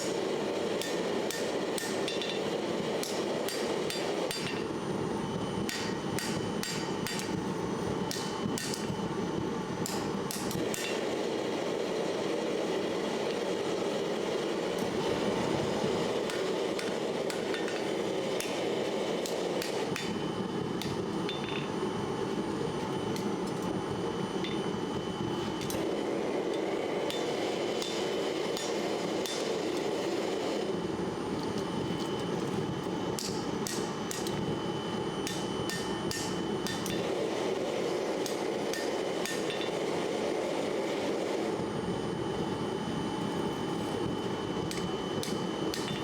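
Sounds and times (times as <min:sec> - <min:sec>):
hammer tapping on metal: 0:05.7 - 0:07.4.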